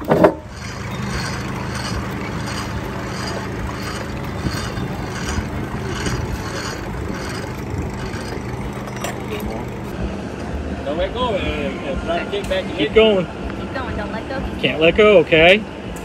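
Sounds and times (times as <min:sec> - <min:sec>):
regular clatter: 0:00.0 - 0:10.0
mechanical running hum: 0:00.0 - 0:10.8.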